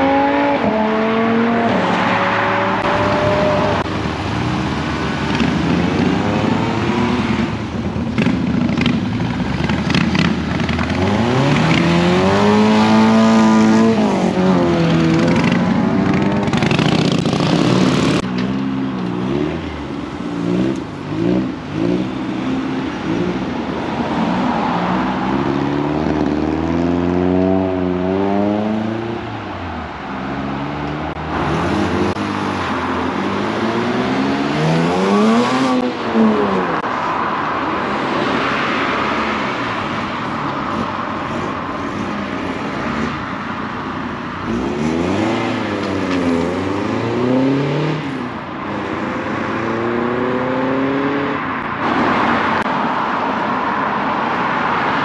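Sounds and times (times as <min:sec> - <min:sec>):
cars accelerating: 0:00.0 - 0:09.1, 0:09.8 - 0:55.0.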